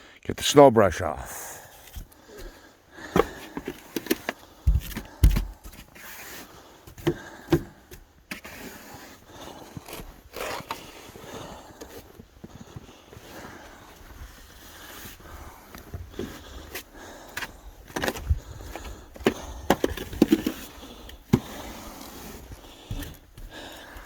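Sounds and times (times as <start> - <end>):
clunks knocks and scraping at car: 1.9 - 5.9, 17.4 - 21.6
heavy thumps: 4.6 - 5.7.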